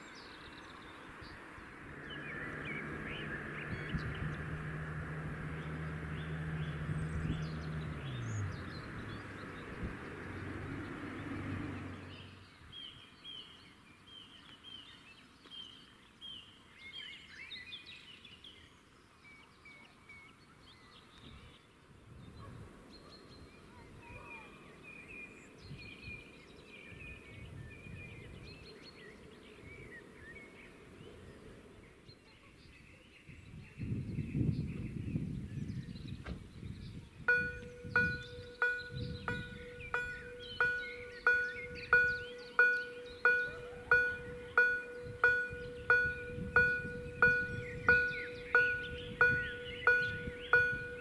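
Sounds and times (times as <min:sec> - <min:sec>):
birds chirping and trilling: 0:00.0 - 0:51.0
low steady outdoor background noise: 0:00.0 - 0:51.0
low rumble: 0:01.6 - 0:12.4.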